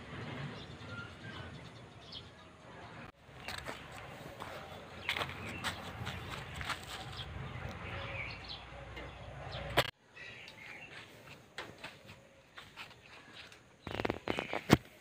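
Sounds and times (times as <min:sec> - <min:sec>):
birds chirping: 0:00.0 - 0:15.0
outdoor background noise: 0:00.0 - 0:15.0.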